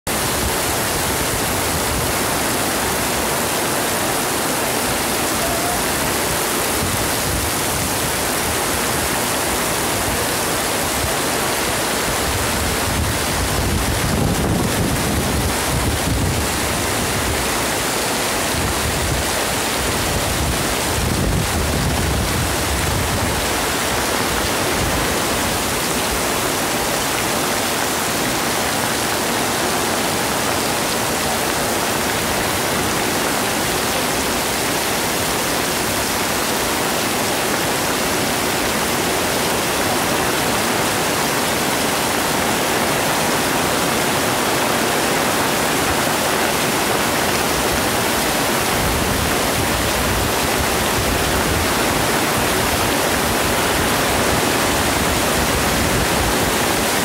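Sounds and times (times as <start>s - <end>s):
torrential rain on pavement: 0.1s - 57.0s
wind buffeting microphone: 6.2s - 26.3s.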